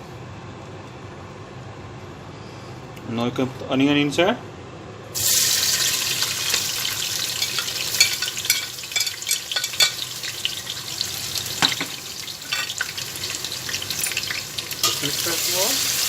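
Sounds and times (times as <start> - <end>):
onions sizzling in hot oil: 5.1 - 16.0.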